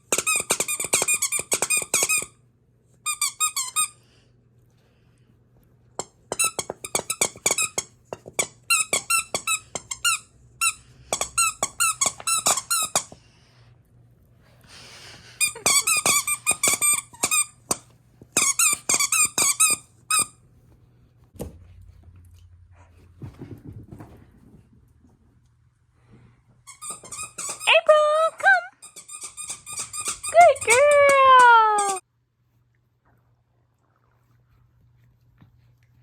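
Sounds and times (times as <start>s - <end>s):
squeaky dog toy squeaking: 6.3s - 13.1s, 15.4s - 17.8s, 18.4s - 20.4s, 26.7s - 32.0s.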